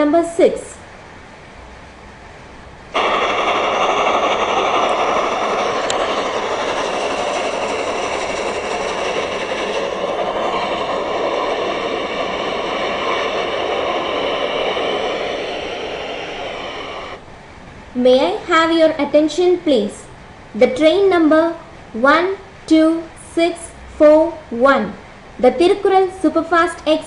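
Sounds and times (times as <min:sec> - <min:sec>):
train rushing on rails: 0:02.9 - 0:17.2
high steady tones: 0:03.0 - 0:17.2.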